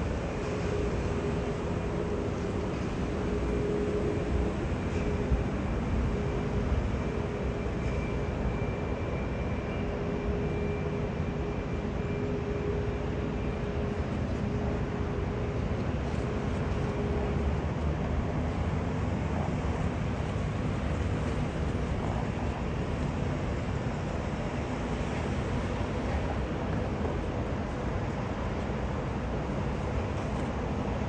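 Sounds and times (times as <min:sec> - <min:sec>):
faint steady whine: 0:00.0 - 0:31.0
jet engine rumble: 0:11.2 - 0:31.0.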